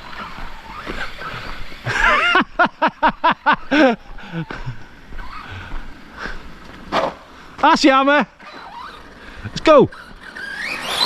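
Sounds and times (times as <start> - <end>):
person laughing: 0.9 - 5.0.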